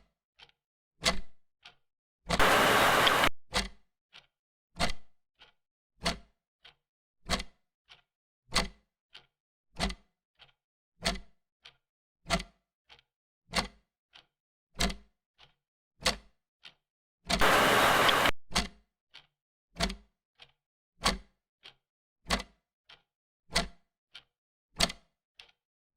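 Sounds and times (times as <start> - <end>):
hiss burst: 2.4 - 3.3, 17.4 - 18.3.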